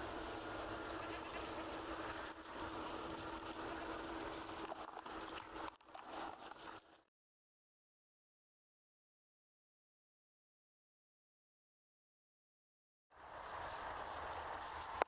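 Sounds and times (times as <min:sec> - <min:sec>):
faint steady hum: 0:00.0 - 0:07.0, 0:13.2 - 0:15.0
light rustling and pattering: 0:00.0 - 0:07.0, 0:13.4 - 0:15.0.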